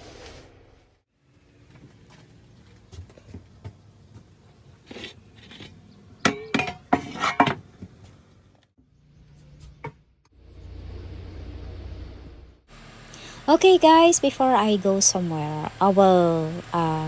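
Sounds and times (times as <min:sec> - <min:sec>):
dishes and glassware clinking: 0:06.3 - 0:07.6.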